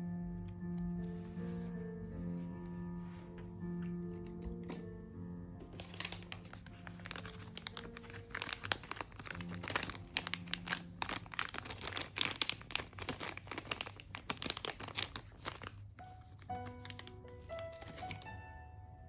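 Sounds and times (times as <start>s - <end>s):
paper crinkling and rustling: 3.3s - 5.0s, 5.6s - 18.4s.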